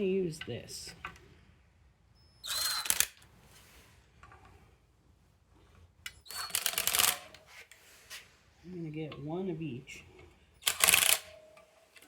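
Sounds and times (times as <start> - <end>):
ratchet wrench clicking: 10.6 - 11.3.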